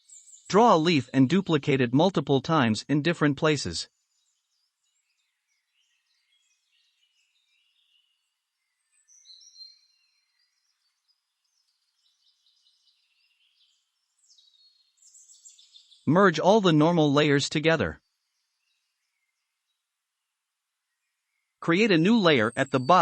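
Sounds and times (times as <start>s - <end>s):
faint birdsong chirps: 0.0s - 23.0s.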